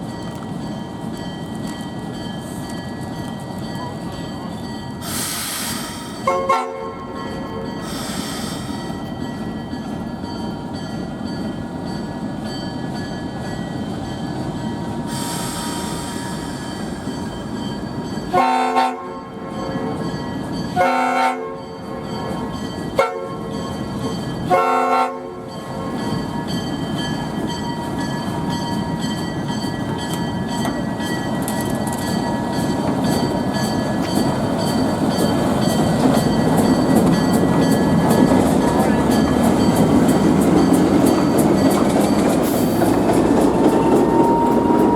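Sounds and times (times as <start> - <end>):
diesel locomotive engine: 0.0 - 44.9
locomotive horn: 6.2 - 7.6, 18.3 - 20.0, 20.7 - 21.6, 23.0 - 23.5, 24.5 - 25.5.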